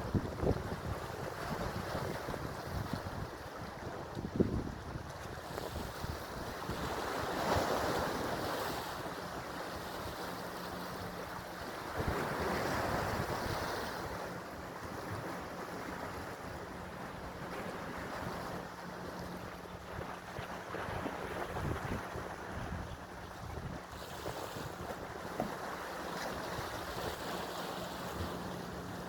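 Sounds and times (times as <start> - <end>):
wind buffeting microphone: 0.0 - 7.1, 19.7 - 24.9
sea waves washing in: 0.0 - 29.0.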